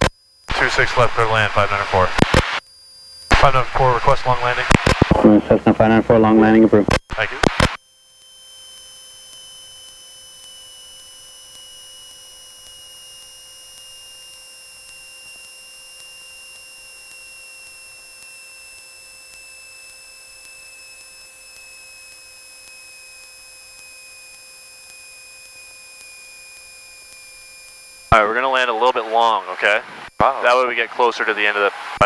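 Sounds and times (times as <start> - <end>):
electrical hum: 0.0 - 2.6, 3.3 - 7.7, 25.4 - 32.0
high whine drifting down: 28.0 - 32.0.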